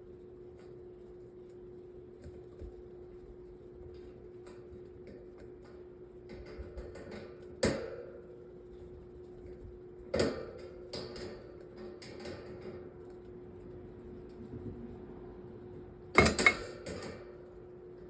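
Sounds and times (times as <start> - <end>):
sharp metallic clanks: 16.2 - 17.2.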